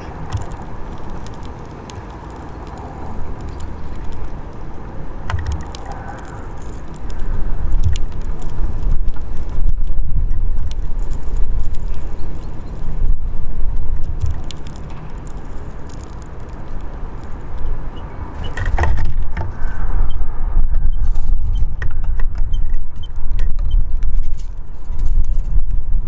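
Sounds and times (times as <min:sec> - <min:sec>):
small clicks and taps: 0:00.0 - 0:09.6, 0:13.7 - 0:19.5
wind buffeting microphone: 0:00.0 - 0:26.0.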